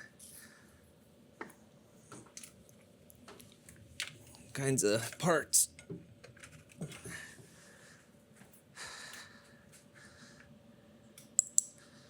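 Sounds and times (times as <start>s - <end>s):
soft breaths: 0.0s - 1.0s, 7.0s - 11.1s, 11.7s - 12.0s
sharp clicks: 11.2s - 11.8s.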